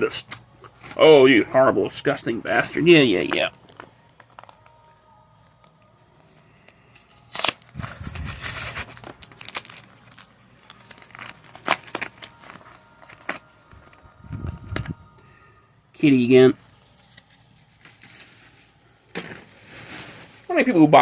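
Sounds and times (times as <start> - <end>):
foil wrapper crinkling: 3.6 - 4.9, 5.6 - 14.9, 16.7 - 20.7
foil pack tearing open: 6.9 - 13.5.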